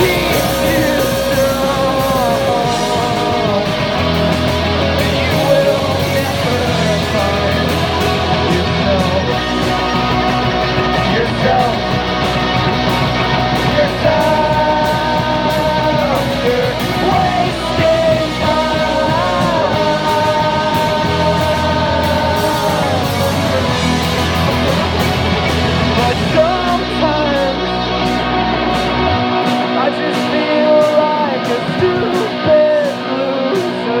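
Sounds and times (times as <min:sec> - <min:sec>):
person singing long notes: 0:00.0 - 0:12.4, 0:13.4 - 0:24.5
rock band playing loudly: 0:00.0 - 0:34.0.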